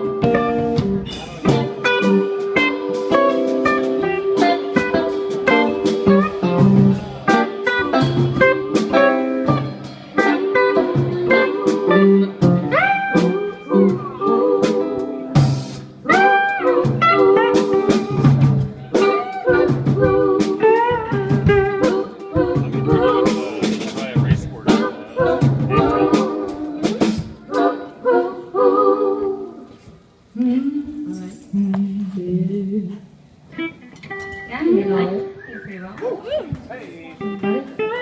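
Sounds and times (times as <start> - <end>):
electric guitar sliding notes: 0.0 - 23.3, 33.6 - 36.6.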